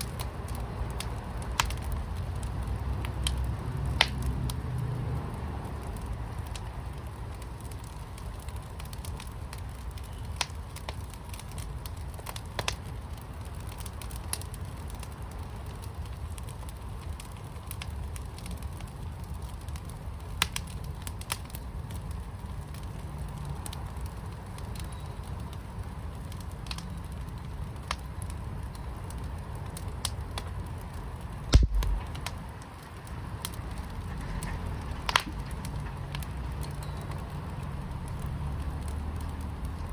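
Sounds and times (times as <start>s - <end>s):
sharp pops of fire: 0.0s - 5.0s, 5.7s - 22.2s, 26.3s - 39.9s
wood fire crackling: 0.0s - 39.9s
low rumble: 31.5s - 32.4s
loud thump: 31.6s - 32.2s.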